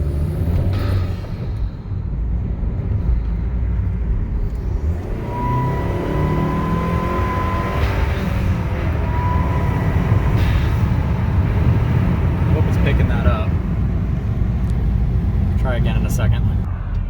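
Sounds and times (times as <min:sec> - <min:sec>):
car engine revving: 0:00.0 - 0:01.8, 0:02.4 - 0:17.0
turbo whistle: 0:05.2 - 0:10.8.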